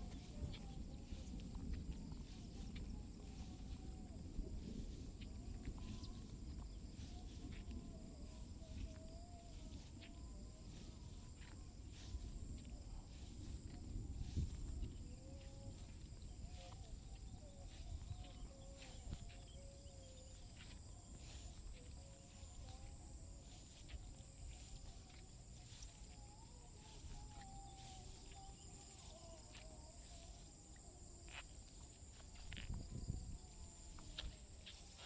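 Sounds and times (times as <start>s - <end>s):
faint wavering lower calls: 0.0s - 35.0s
insects droning: 0.0s - 35.0s
pulsing insect call: 0.0s - 35.0s.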